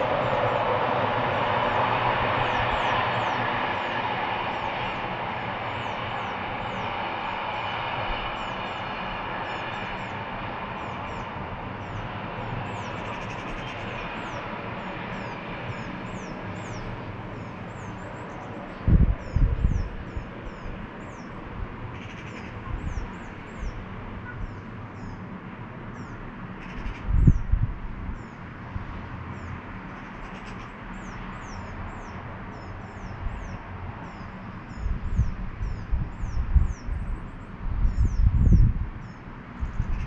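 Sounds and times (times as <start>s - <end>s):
passing train: 0.0s - 40.0s
wind bumps on microphone: 18.8s - 20.8s, 26.8s - 29.0s, 34.7s - 40.0s
small birds chirping: 29.3s - 40.0s.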